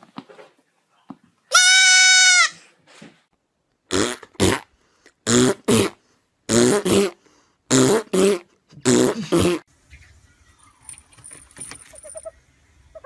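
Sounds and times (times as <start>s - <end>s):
goat kid bleating: 1.5s - 2.6s.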